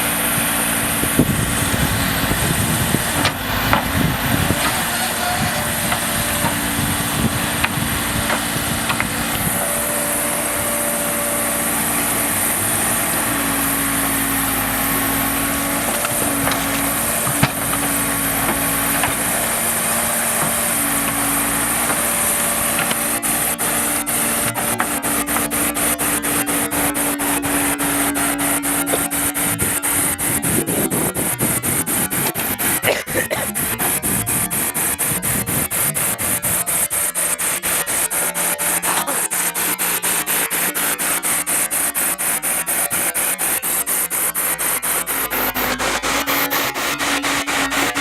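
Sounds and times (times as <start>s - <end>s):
diesel machine engine running: 0.0s - 48.0s
machine clanking and knocking: 14.0s - 27.0s.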